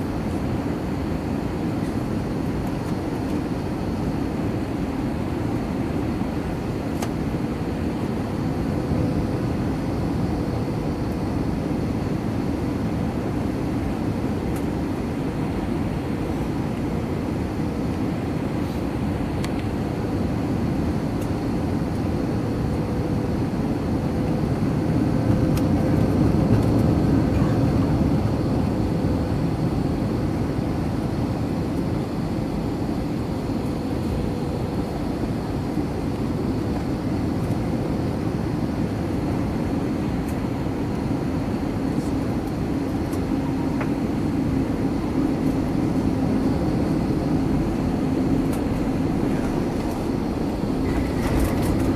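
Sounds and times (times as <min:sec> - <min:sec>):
airplane cabin engine rumble: 0:00.0 - 0:51.9
faint steady whine: 0:00.0 - 0:51.9.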